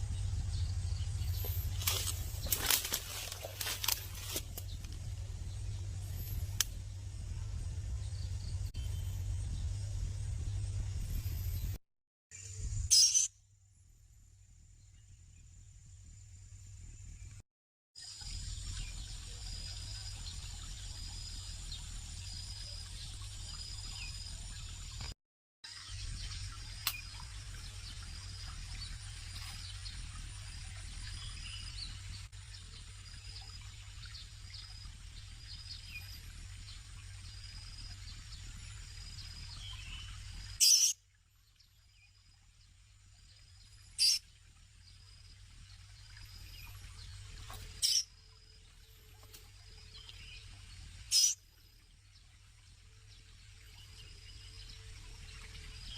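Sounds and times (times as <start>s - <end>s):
steady low rumble: 0.0s - 11.8s, 26.0s - 40.6s
birds chirping and whistling: 12.9s - 13.3s, 39.5s - 41.0s, 44.0s - 44.2s, 47.5s - 48.1s, 51.1s - 51.4s
background birds: 25.7s - 55.9s
faint insects: 41.8s - 55.9s
baby bird harsh high calls: 44.0s - 44.2s, 51.1s - 51.4s.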